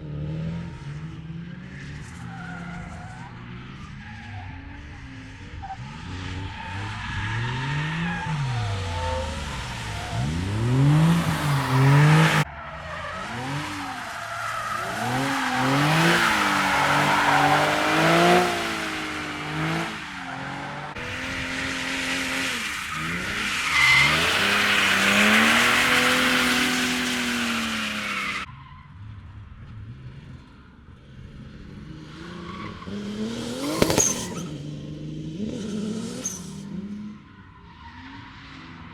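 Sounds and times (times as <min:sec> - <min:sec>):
tyres skidding: 0:01.6 - 0:38.9
car engines revving hard: 0:04.5 - 0:28.5, 0:29.5 - 0:37.3
sharp crack: 0:33.5 - 0:34.6.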